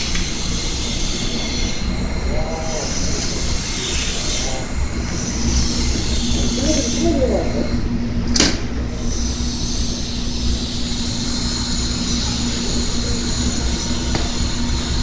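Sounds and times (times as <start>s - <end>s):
welding arc hissing: 0.0s - 7.8s, 8.9s - 15.0s
low hum: 0.0s - 15.0s
sharp click: 8.3s - 8.6s.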